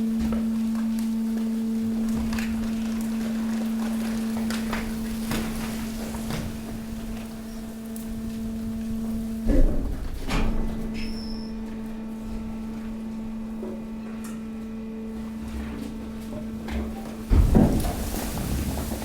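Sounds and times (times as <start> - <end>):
hydraulic pump humming: 0.0 - 19.0
brief high squeak: 11.0 - 11.6
loud thumps from waste: 16.4 - 19.0.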